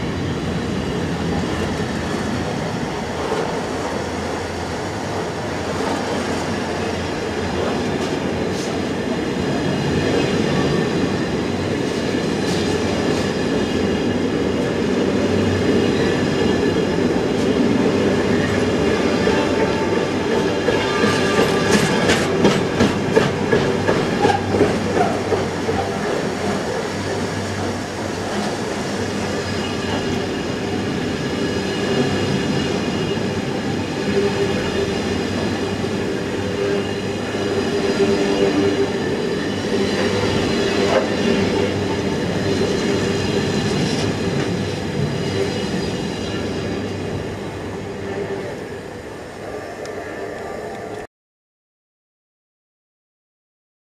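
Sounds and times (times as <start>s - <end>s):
freight train rolling past: 0.0s - 51.0s
wheels clacking over rail joints: 20.4s - 28.6s.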